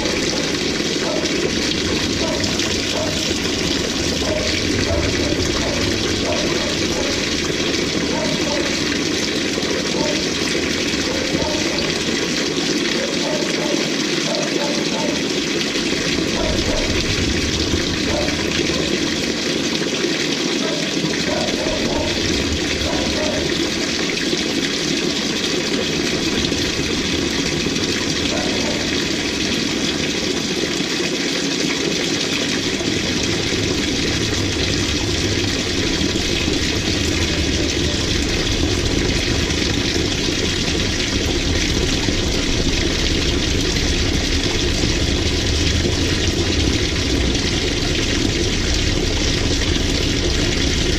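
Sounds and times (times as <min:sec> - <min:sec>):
water rushing in washing machine: 0:00.0 - 0:50.9.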